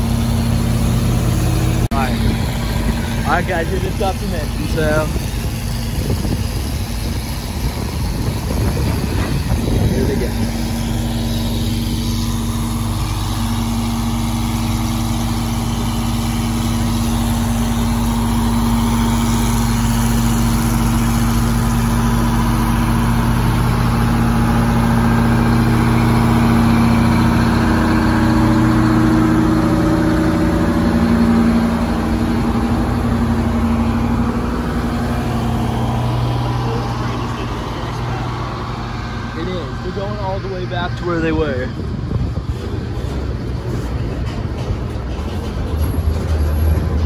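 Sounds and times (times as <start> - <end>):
diesel engine hum: 0.0 - 47.0
train cars rolling past: 36.1 - 47.0.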